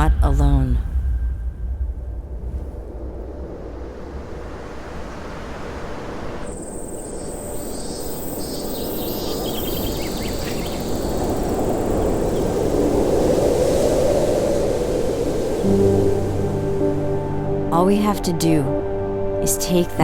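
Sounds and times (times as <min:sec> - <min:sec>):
steady rushing noise: 0:00.8 - 0:17.7
high insect chirring: 0:06.5 - 0:13.9.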